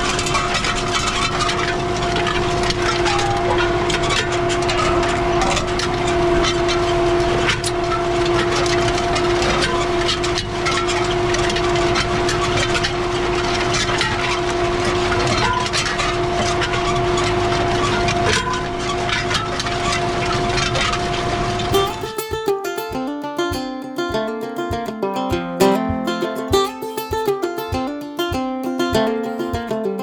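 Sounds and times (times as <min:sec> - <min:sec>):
harrow discs clanking and ticking: 0:21.7 - 0:30.0.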